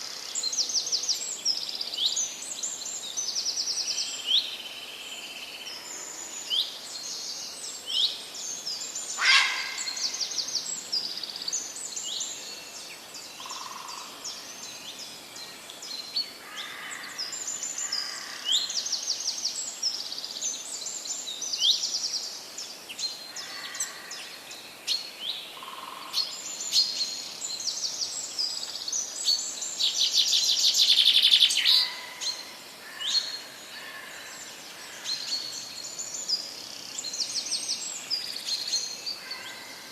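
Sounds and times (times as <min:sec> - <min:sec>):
birds singing and chirping: 0:00.0 - 0:39.9
fast loud bird trill: 0:09.2 - 0:10.0.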